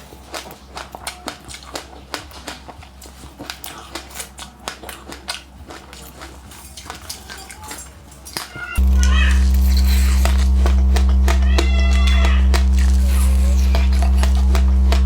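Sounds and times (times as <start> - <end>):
crunchy chewing: 0.0 - 15.0
faint low hum: 8.8 - 15.0.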